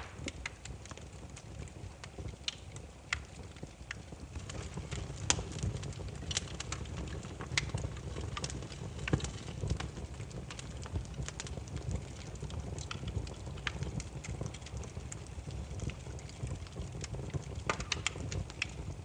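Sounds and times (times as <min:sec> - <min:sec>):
firewood crackling and popping: 0:00.0 - 0:19.0
low rumble of flames: 0:00.0 - 0:19.0.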